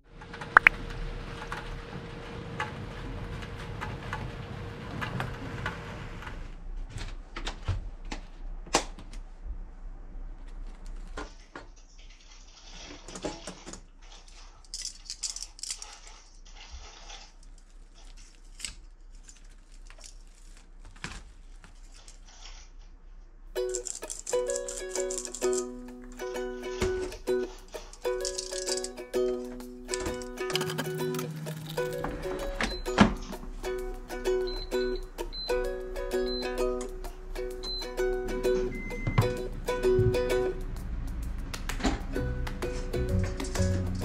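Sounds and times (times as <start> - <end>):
steady noise: 36.9 - 44.0.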